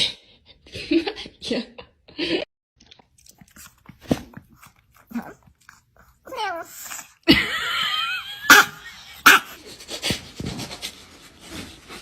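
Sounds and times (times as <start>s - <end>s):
dog chewing: 2.8s - 6.9s.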